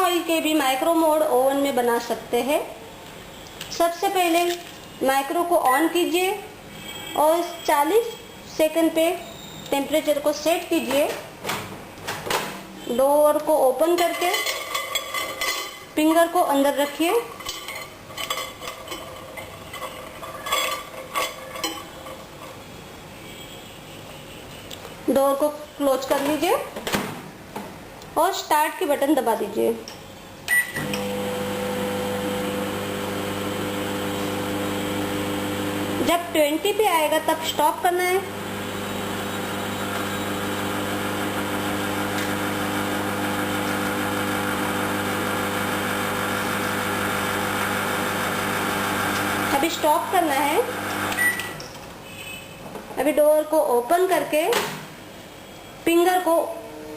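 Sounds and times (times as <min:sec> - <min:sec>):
dishware clinking and knocking: 0:13.9 - 0:15.9, 0:17.4 - 0:22.5
microwave oven humming: 0:30.5 - 0:36.0, 0:38.3 - 0:49.6.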